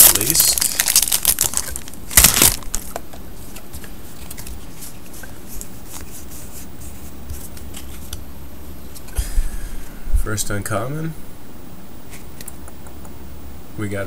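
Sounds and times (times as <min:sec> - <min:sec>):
cards rustling: 0:00.0 - 0:06.6.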